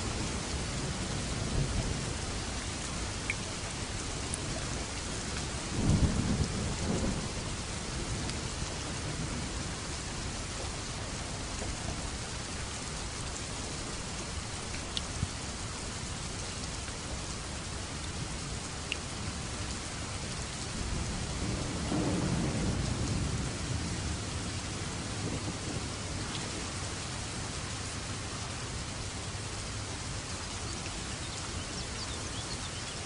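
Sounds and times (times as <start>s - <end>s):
heavy rain: 0.0s - 33.0s
raindrop ticks: 3.2s - 3.5s, 8.1s - 8.5s, 14.6s - 15.2s, 18.8s - 19.8s, 26.2s - 26.6s
thunder rolling: 20.9s - 26.6s.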